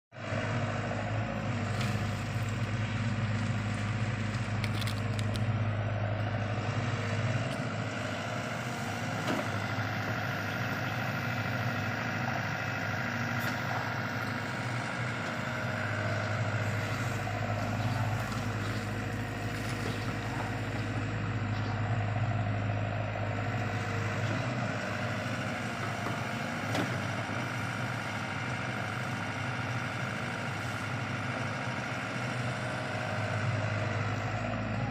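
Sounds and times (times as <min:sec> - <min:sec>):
excavator diesel engine running: 0:00.2 - 0:34.9.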